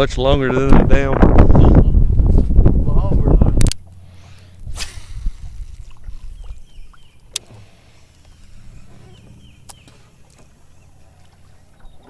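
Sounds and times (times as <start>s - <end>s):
wind on microphone: 0.0s - 7.7s.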